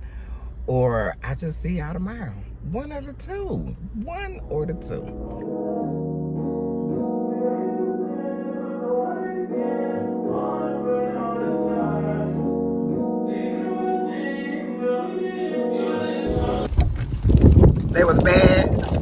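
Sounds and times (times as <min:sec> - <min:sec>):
keyboard chords: 0:03.4 - 0:16.8.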